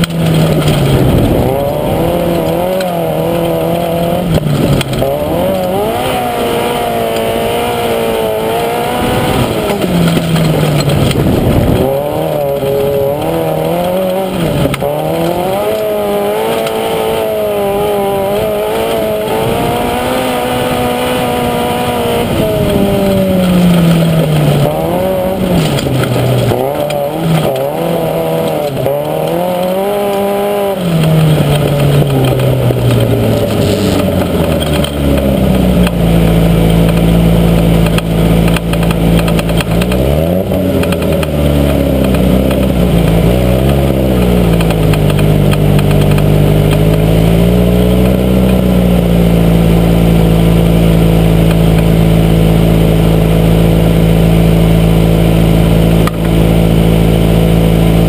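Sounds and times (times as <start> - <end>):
car engine revving and idling: 0.0 - 58.0.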